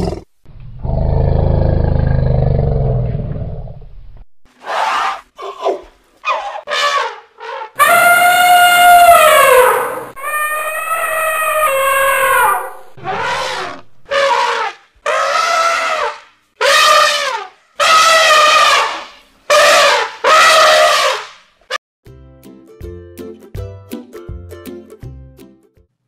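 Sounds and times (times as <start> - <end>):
elephants trumpeting: 6.2 - 21.3.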